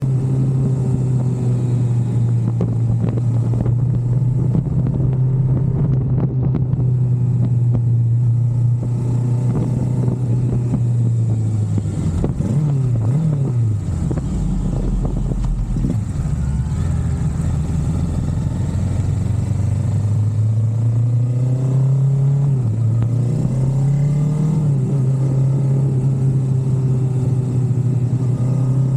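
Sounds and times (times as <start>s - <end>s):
vehicle engine running: 0.0s - 21.4s.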